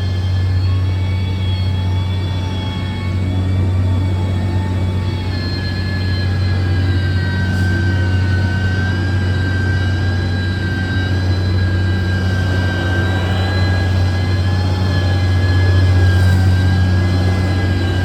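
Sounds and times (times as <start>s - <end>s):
diesel engine rumbling with whine: 0.0s - 18.0s.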